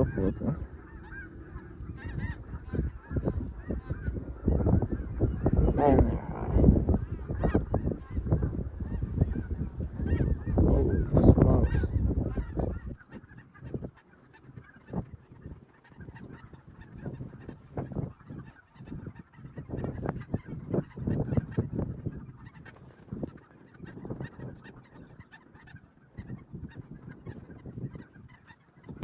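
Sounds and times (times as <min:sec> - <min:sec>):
geese honking: 0:00.0 - 0:29.0.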